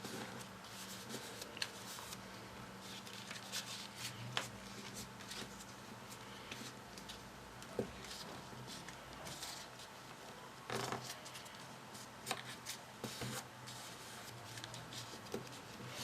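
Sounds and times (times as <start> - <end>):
paper rustling: 0.0 - 2.2, 2.8 - 7.2.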